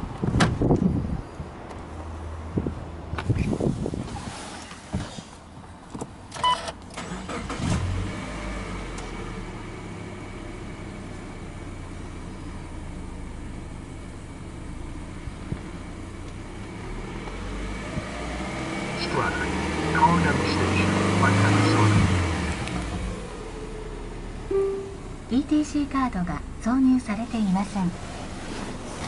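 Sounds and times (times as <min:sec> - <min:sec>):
car engine cranking and idling: 0:00.0 - 0:29.0
short electronic beep: 0:24.5 - 0:25.2.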